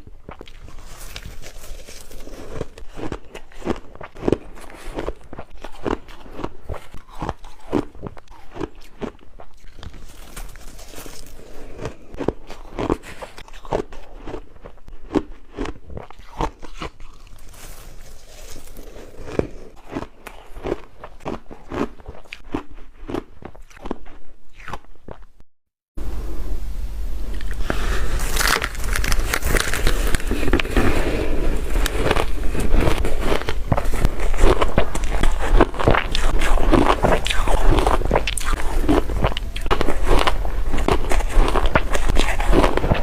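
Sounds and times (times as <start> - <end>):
shaved ice crunching: 0.5 - 5.0, 9.6 - 12.0, 17.1 - 19.8, 27.4 - 43.0
low hum: 26.0 - 42.9.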